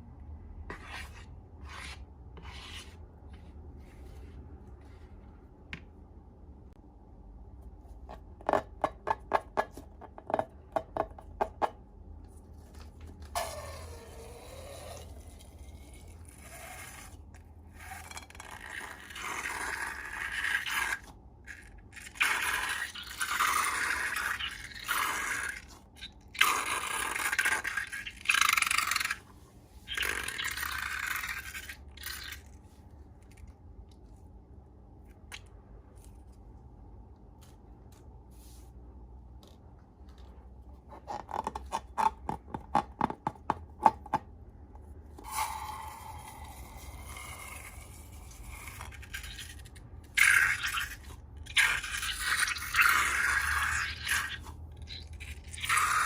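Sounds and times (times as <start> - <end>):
slime scraping: 0.6 - 5.2, 12.4 - 34.2.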